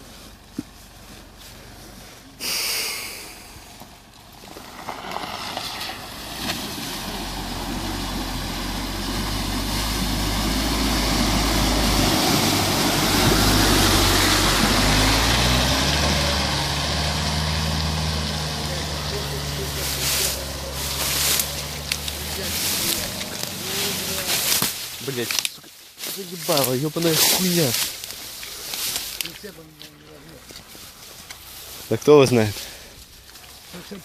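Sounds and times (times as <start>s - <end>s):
car engine pulling under load: 0.0s - 34.0s
water rushing and splashing: 5.2s - 25.3s.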